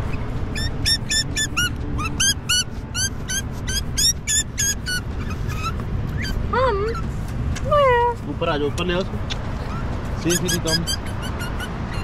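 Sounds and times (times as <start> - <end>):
bird squeaky calls: 0.1 - 7.1, 9.6 - 12.0.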